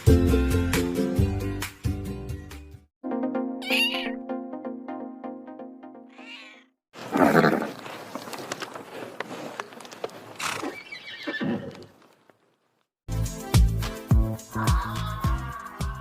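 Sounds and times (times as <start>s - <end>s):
plucked notes tune: 3.4s - 6.1s
cat meowing: 3.6s - 4.2s, 6.1s - 6.7s.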